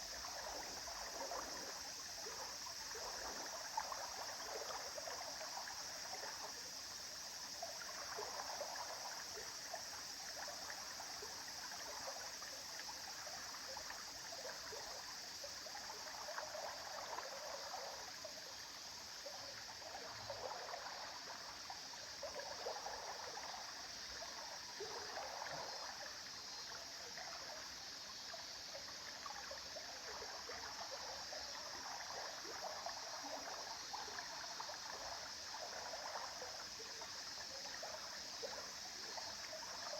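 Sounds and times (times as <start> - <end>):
river water flowing: 15.2 - 39.9
water splashing and trickling: 19.4 - 39.9.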